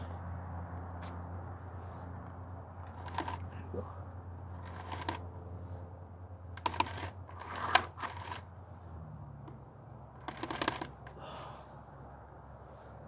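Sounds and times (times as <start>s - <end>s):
chainsaw clicks and rattles: 2.8s - 3.6s, 4.6s - 5.3s, 6.6s - 8.5s, 10.2s - 11.2s.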